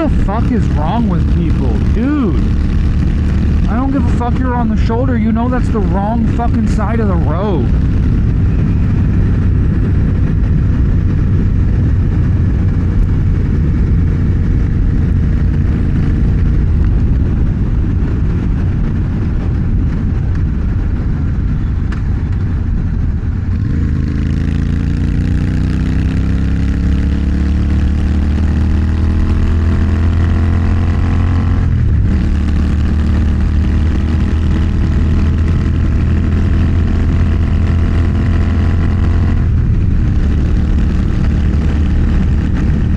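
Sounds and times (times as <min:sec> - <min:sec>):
motorcycle engine revving: 0:00.0 - 0:21.8, 0:22.7 - 0:42.9.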